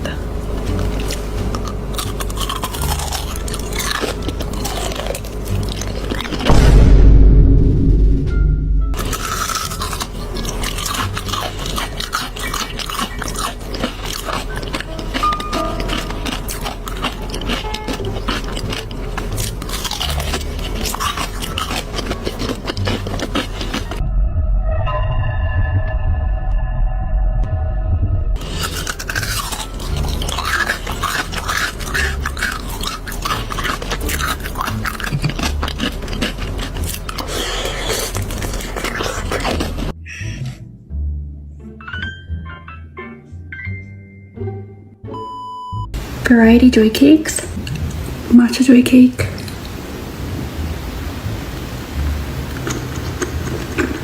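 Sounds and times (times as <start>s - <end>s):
person chewing crunchy food: 0.0s - 6.6s, 9.0s - 24.0s, 28.4s - 40.5s, 52.4s - 54.0s.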